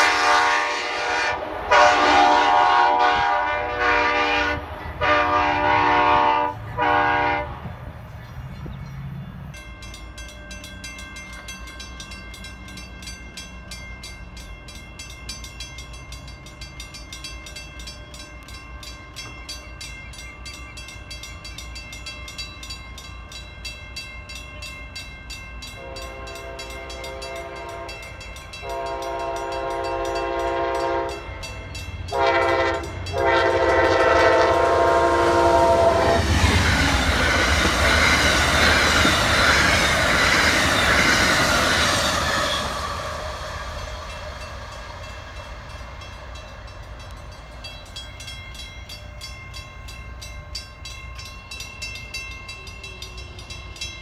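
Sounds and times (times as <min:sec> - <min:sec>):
railroad crossing bell ringing: 0:00.0 - 0:07.5, 0:08.4 - 0:54.0
train horn blasts: 0:00.0 - 0:07.7, 0:25.7 - 0:36.8
train cars rushing past: 0:00.0 - 0:54.0.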